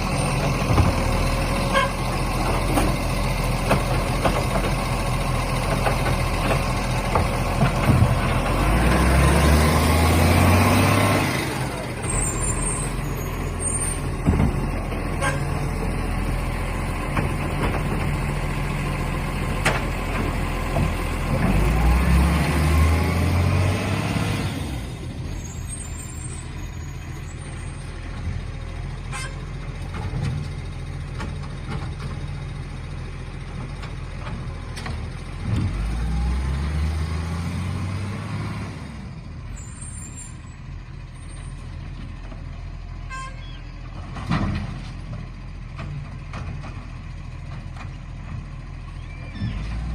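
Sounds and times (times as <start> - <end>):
truck diesel engine revving: 0.0 - 31.7, 32.4 - 39.4.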